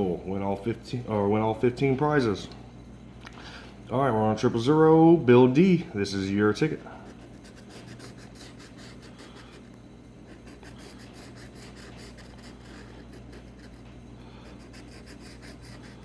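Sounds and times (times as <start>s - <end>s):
low steady hum: 0.0s - 16.0s
scraping lottery ticket coating: 6.8s - 16.0s.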